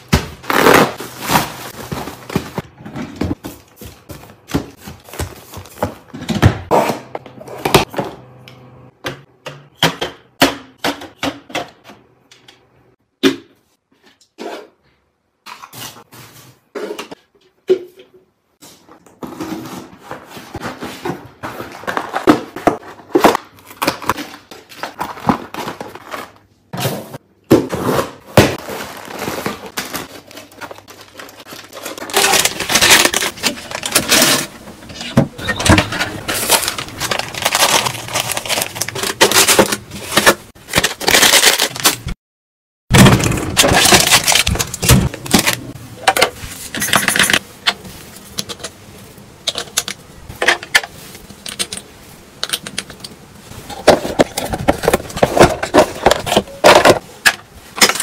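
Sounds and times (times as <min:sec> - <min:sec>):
packets crinkling: 0:28.6 - 0:42.2, 0:43.5 - 0:45.7.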